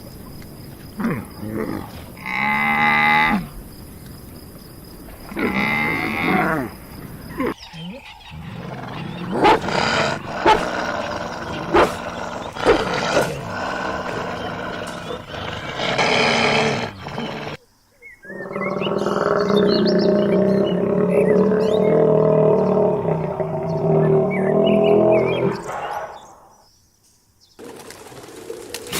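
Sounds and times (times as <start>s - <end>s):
wild animal roars and calls: 7.3s - 17.6s, 18.2s - 26.5s
low steady animal call: 18.2s - 26.5s.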